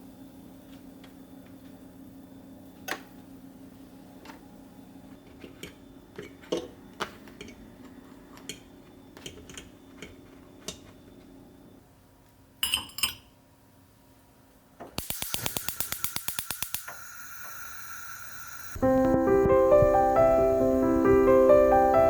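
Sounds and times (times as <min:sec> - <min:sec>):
steady low hum: 0:15.0 - 0:22.0.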